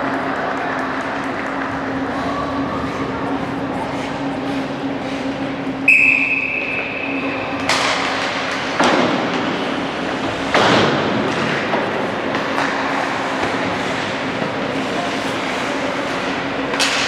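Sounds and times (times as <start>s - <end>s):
crowd noise bursts: 0.0s - 17.0s
referee's whistle: 5.9s - 7.0s.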